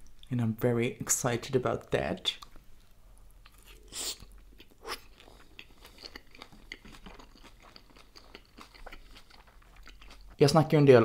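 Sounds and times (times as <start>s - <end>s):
person chewing with wet clicks: 2.3s - 10.5s.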